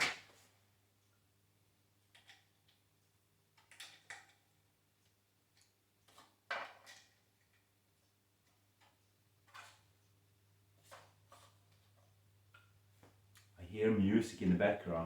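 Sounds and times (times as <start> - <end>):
faint steady hum: 7.1 - 15.0.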